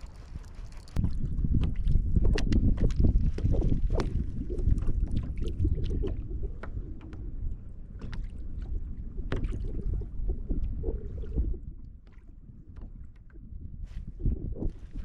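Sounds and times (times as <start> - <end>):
water around kayak: 0.0 - 15.0
wind rumble: 0.0 - 15.0.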